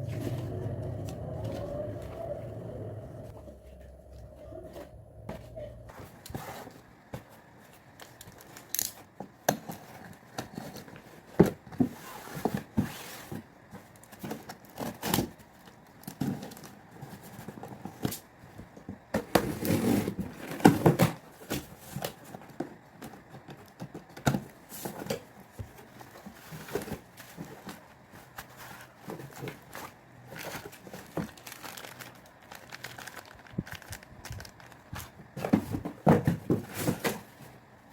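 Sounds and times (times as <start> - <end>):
packaging crinkling and tearing: 29.2 - 35.2.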